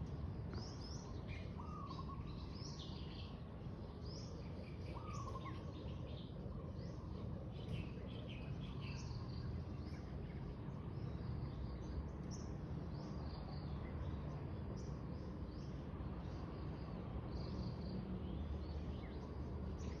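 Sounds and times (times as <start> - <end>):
birds chirping: 0.5 - 16.4.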